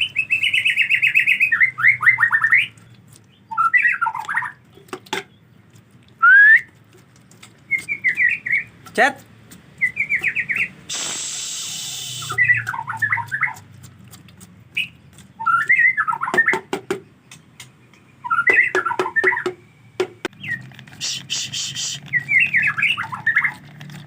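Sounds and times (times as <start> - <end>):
bird singing chirping runs: 0.0 - 10.8, 11.8 - 24.0
hiss bursts: 10.8 - 12.4.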